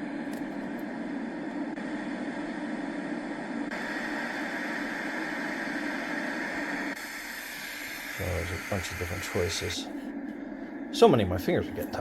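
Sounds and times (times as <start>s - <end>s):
sound machine steady noise: 0.0s - 12.0s
bright hiss: 3.7s - 9.8s.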